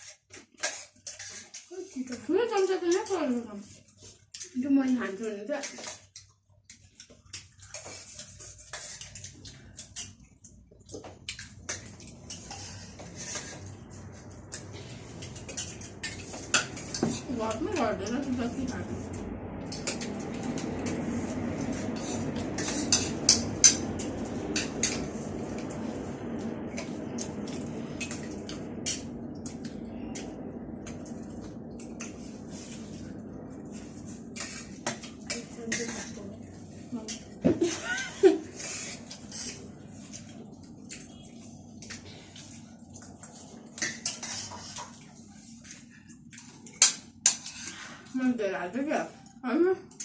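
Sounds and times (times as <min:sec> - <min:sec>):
low background hum: 0:00.0 - 0:50.0
spoons clinking against dishes: 0:22.0 - 0:25.1.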